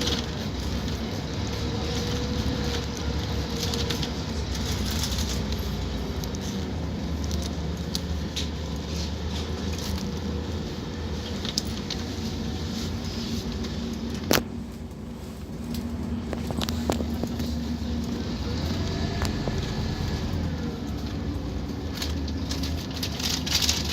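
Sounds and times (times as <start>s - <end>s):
bus diesel engine running: 0.0s - 23.9s
light rattles and clicks: 15.6s - 23.9s.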